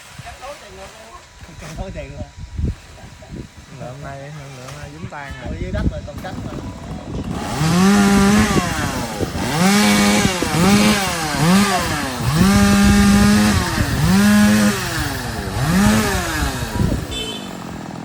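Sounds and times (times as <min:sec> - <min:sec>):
chainsaw revving: 0:05.8 - 0:18.0.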